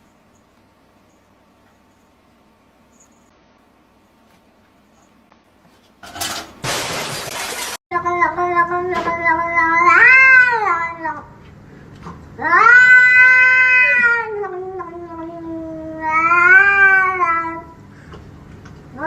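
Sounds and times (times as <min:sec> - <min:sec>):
cat meowing: 0:12.4 - 0:15.3, 0:15.9 - 0:17.7.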